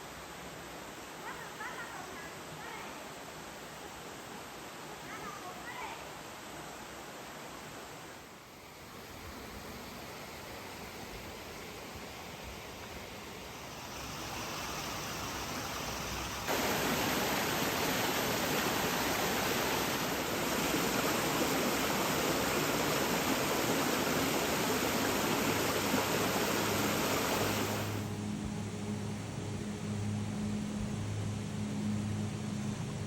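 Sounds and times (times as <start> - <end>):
waterfall rushing water: 8.7 - 28.1.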